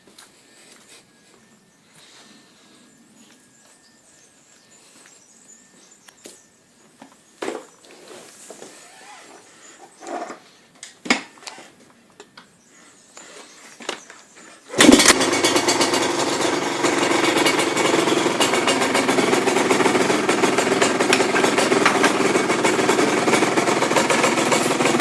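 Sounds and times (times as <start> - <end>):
motorcycle engine idling: 14.8 - 25.0.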